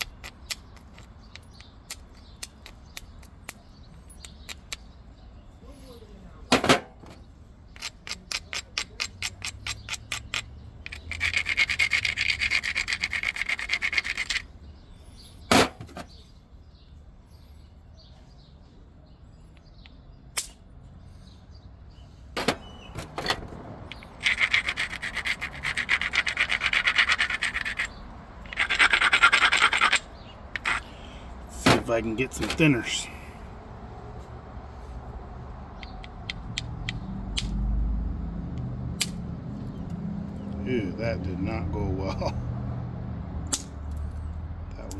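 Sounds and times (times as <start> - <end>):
sharp clicks of stone: 19.6 - 20.6, 35.8 - 37.6, 39.0 - 39.3, 43.5 - 44.1
stone edge gritty scraping: 22.6 - 33.0.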